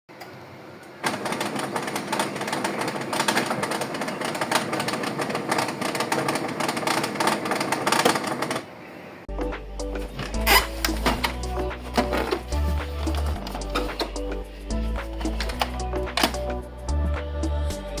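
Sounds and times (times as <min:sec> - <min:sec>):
printer clicking and rattling: 0:01.0 - 0:08.7, 0:10.2 - 0:14.4, 0:15.0 - 0:16.5.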